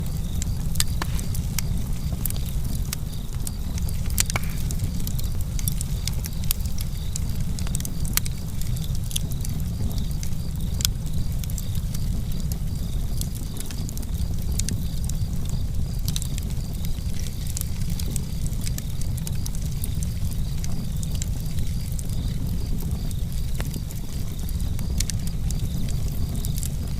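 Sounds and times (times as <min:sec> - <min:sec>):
low fire rumble: 0:00.0 - 0:26.9
wood fire crackling and popping: 0:00.0 - 0:26.9.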